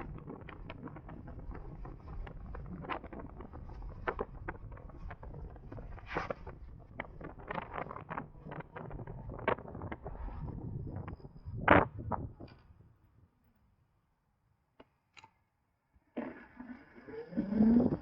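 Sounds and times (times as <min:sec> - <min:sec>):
wind buffeting microphone: 0:00.0 - 0:12.5
sharp crackles and knocks: 0:00.0 - 0:12.7.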